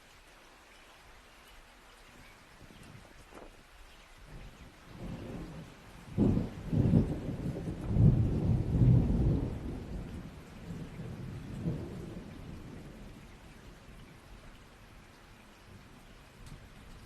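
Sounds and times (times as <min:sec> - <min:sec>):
steady rain: 0:00.0 - 0:17.0
thunder rolling: 0:04.9 - 0:13.2.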